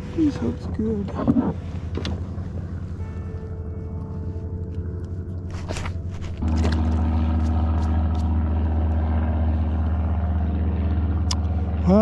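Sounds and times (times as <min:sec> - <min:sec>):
low motor hum: 0:00.0 - 0:12.0
handling clicks and scrapes: 0:05.5 - 0:08.3.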